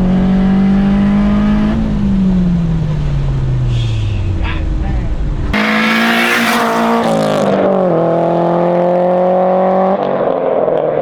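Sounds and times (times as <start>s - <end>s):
car engine revving hard: 5.5s - 11.0s.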